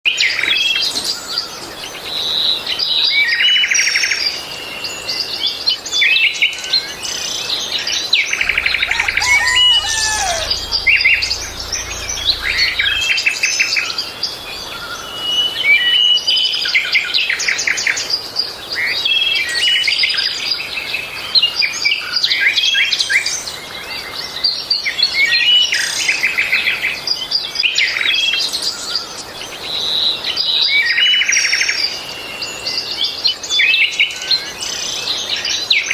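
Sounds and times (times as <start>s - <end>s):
songbirds singing: 8.5s - 13.1s.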